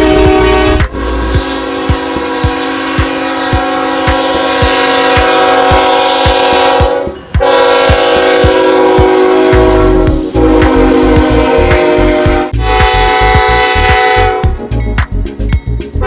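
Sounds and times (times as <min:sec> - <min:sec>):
low thumping: 0:00.0 - 0:12.6
diesel locomotive horn: 0:00.0 - 0:14.6.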